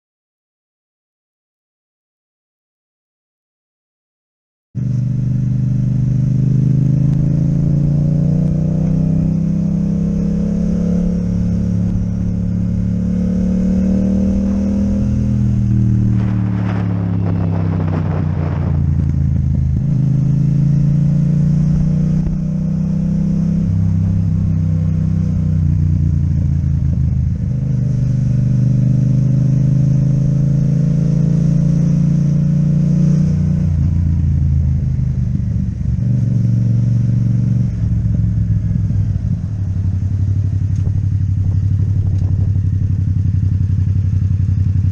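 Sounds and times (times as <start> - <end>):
motorcycle engine running: 4.8 - 44.9
rush of noise: 10.4 - 26.1.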